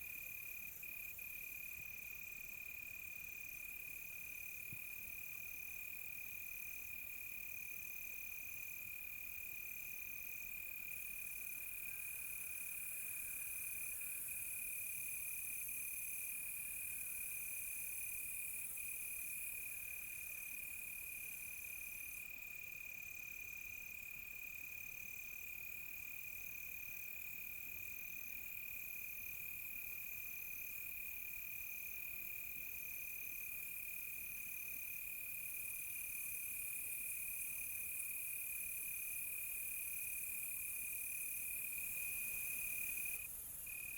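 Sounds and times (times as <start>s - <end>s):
cricket chirping: 0.0s - 43.9s
high hiss of insects: 37.9s - 43.9s.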